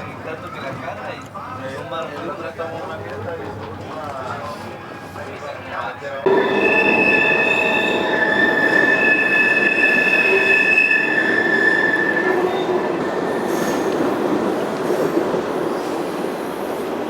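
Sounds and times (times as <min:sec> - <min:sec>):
rumble of moving railcar: 0:00.0 - 0:17.0
train wheels squealing on rails: 0:06.3 - 0:17.0.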